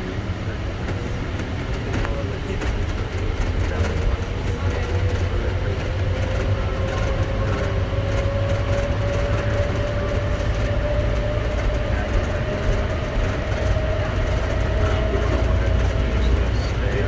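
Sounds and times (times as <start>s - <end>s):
train low rumble: 0.0s - 17.0s.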